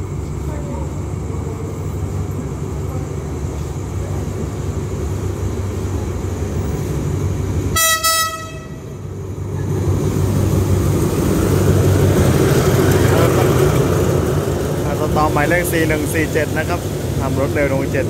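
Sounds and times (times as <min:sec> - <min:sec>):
diesel locomotive engine rumbling: 0:00.0 - 0:18.0
train horn blast: 0:07.7 - 0:08.9.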